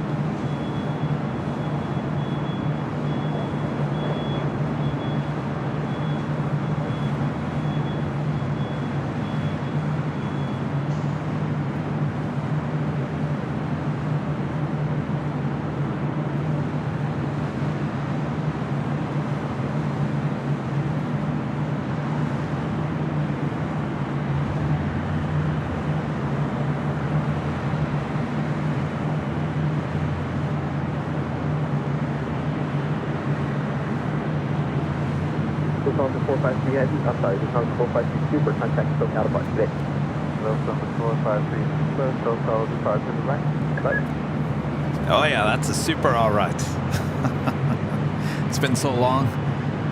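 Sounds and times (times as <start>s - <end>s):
jet engines at takeoff power: 0.0s - 45.0s.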